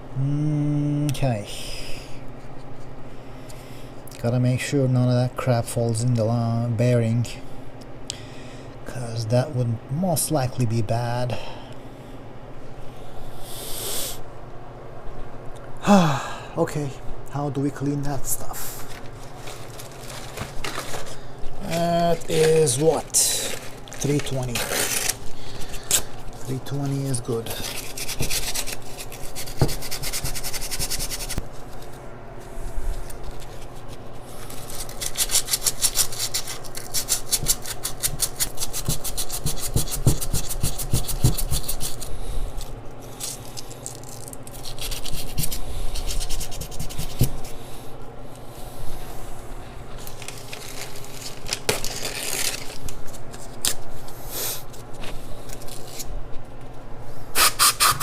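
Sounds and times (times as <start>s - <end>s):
sandpaper scrubbing metal: 27.0s - 31.4s, 34.7s - 42.1s.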